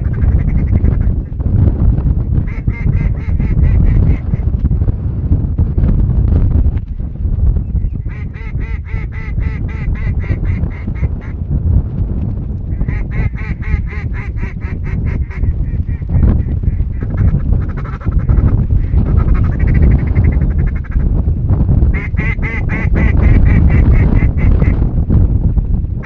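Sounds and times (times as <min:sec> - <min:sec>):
wind rumble on microphone: 0:00.0 - 0:26.0
duck quacking rapidly: 0:02.5 - 0:04.4, 0:08.1 - 0:11.4, 0:12.8 - 0:18.4, 0:21.9 - 0:24.8.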